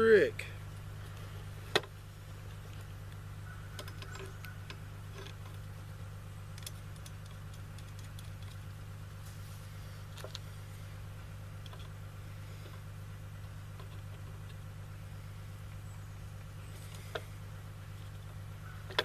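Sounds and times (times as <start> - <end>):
low hum: 0.0 - 19.0
small metal parts clicking: 6.5 - 8.6.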